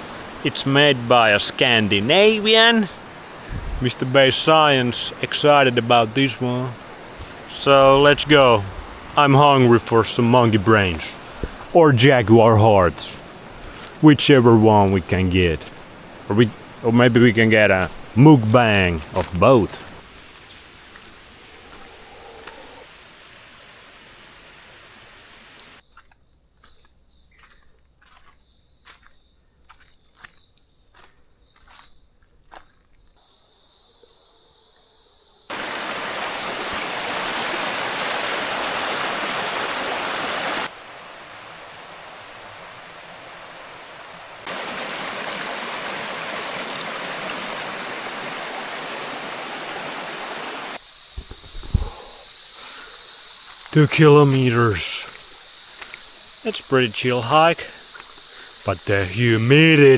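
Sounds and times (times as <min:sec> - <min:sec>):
high insect tone: 0:00.0 - 0:22.9, 0:25.8 - 0:37.1, 0:46.7 - 0:59.9.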